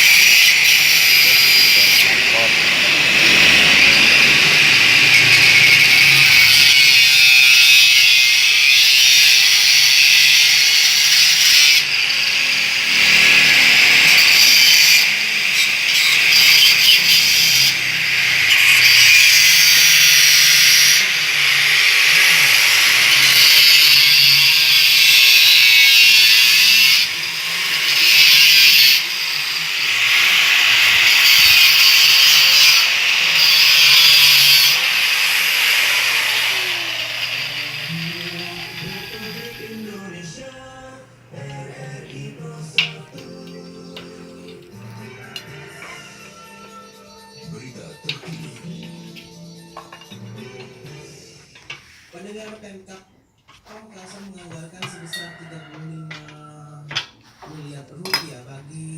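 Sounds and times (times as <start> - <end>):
power tool cutting sheet metal: 0.0 - 40.3.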